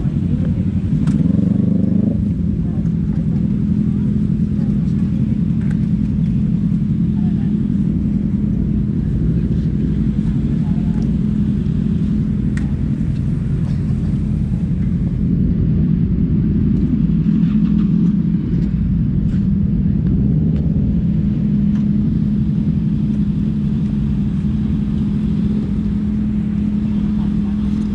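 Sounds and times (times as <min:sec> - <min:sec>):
motorcycle engine idling: 0:00.0 - 0:27.9.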